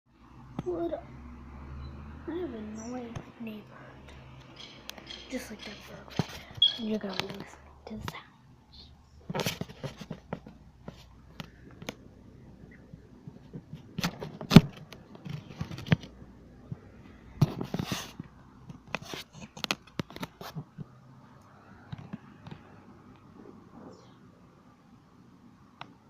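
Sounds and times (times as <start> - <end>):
short scraping sounds: 17.4 - 18.2.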